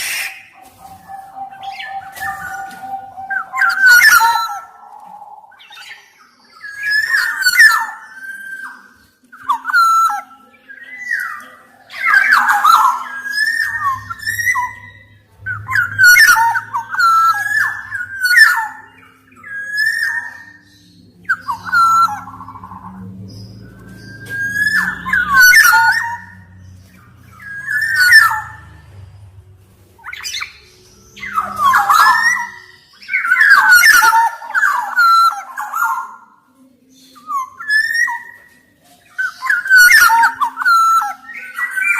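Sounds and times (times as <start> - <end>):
oriole singing fluty whistles: 0.0 - 4.9, 5.6 - 26.6, 27.3 - 28.8, 30.0 - 36.2, 37.0 - 38.5
faint low hum: 12.8 - 32.7.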